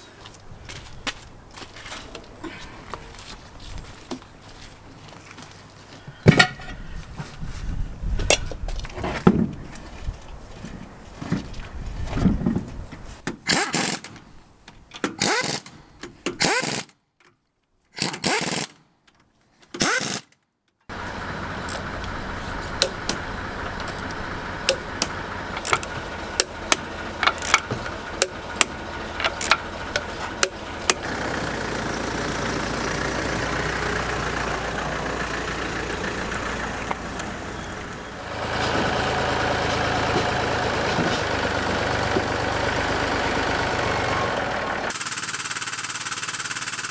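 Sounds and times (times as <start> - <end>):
motor running steadily: 20.9 - 46.9.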